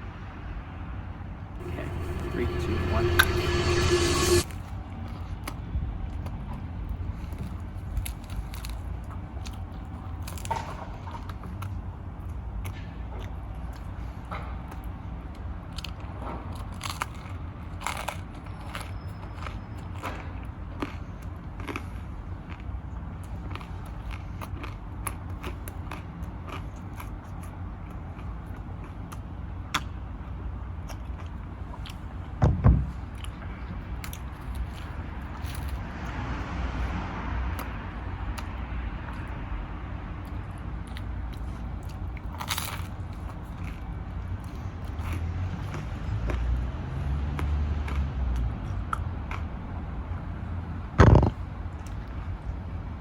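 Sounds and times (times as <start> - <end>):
short loud noise: 1.6 - 4.6
steady low rumble: 1.6 - 4.7
person chewing pizza: 15.8 - 29.9, 40.2 - 46.5
person chewing food: 20.8 - 29.9.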